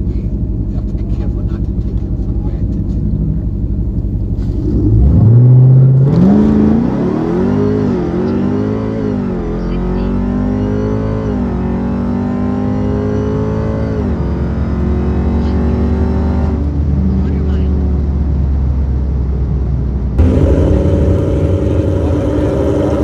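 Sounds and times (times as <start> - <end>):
drag cars accelerating hard: 20.2 - 23.0.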